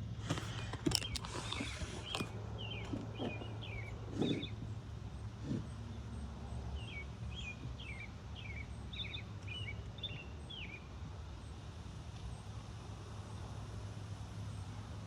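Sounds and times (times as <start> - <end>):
songbird chirping: 0.6 - 4.7.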